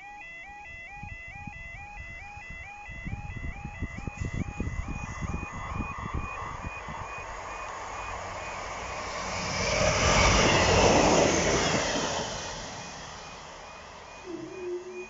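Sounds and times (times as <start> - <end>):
level crossing alarm beeps: 0.0 - 9.0, 10.1 - 15.0
train passing at speed: 4.8 - 15.0.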